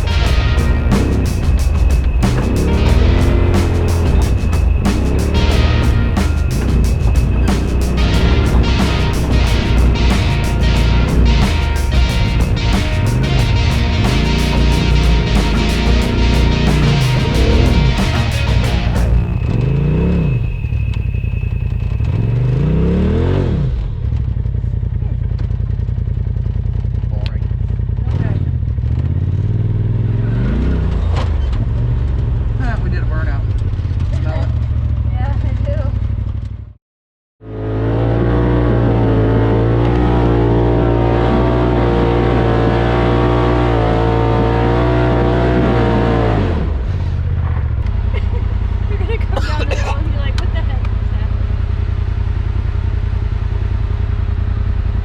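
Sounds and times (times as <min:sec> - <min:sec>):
utility vehicle engine revving: 0:00.0 - 0:24.2, 0:37.4 - 0:48.1.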